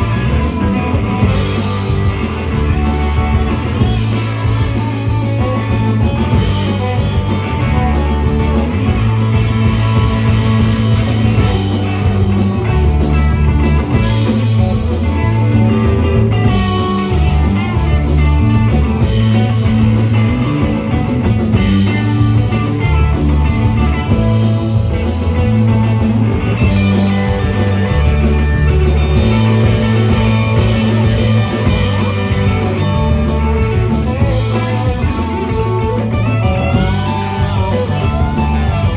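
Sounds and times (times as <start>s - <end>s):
lead guitar: 0.0s - 38.9s
live rock band: 0.0s - 38.9s.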